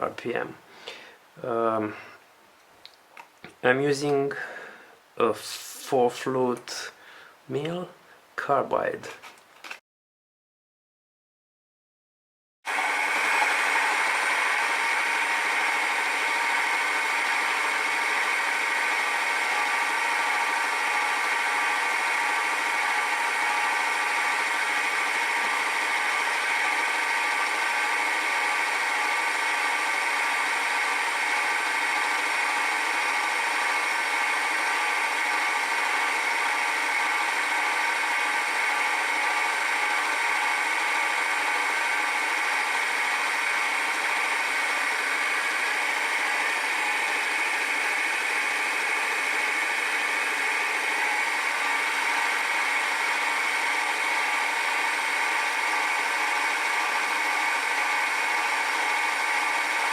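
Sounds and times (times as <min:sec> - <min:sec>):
milling machine humming: 0:12.7 - 0:59.9.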